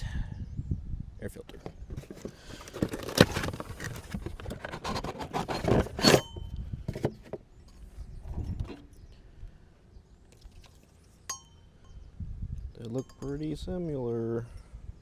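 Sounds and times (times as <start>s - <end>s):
air filter housing rustling and clicking: 1.4s - 7.4s, 8.3s - 9.0s.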